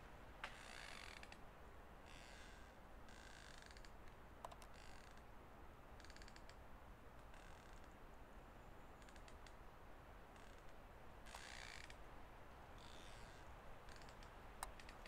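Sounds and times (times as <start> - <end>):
soft raspy clicking: 3.3 - 5.2, 6.0 - 6.6, 9.0 - 9.6, 12.9 - 15.0.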